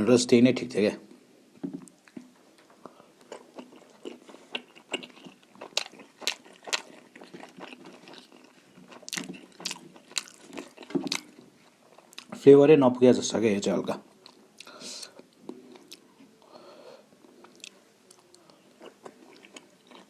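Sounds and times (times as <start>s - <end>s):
person chewing food: 1.8s - 12.4s, 14.1s - 16.5s, 17.2s - 20.0s.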